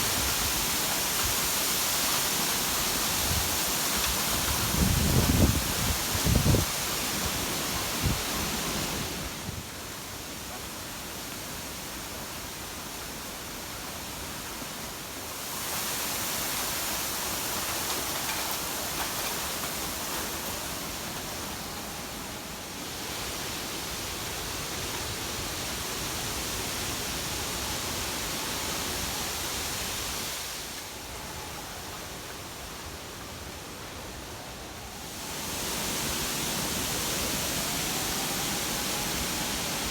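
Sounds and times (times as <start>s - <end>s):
rushing storm wind: 2.6s - 10.0s.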